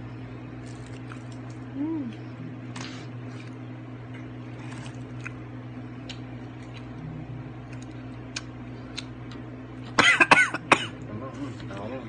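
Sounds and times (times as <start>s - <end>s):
steady low hum: 0.0s - 12.0s
soft squishy chewing: 6.0s - 9.9s.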